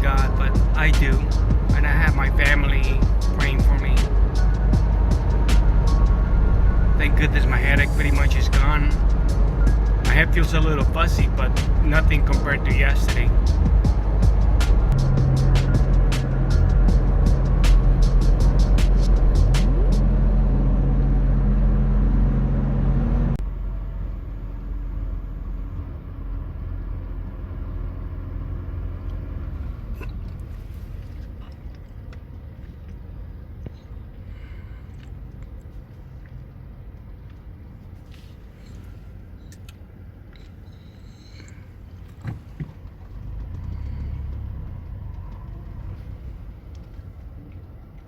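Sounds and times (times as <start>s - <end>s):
background music: 0.0s - 21.9s
road and engine rumble: 0.0s - 48.0s.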